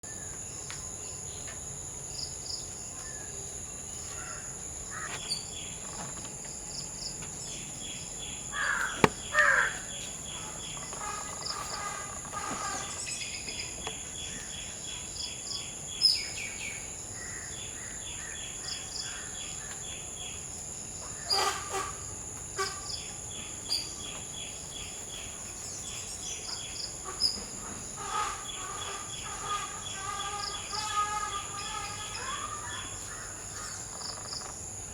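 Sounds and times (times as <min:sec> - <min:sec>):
high insect drone: 0:00.1 - 0:34.9
crows cawing: 0:04.2 - 0:05.2, 0:08.5 - 0:10.0, 0:28.0 - 0:34.0.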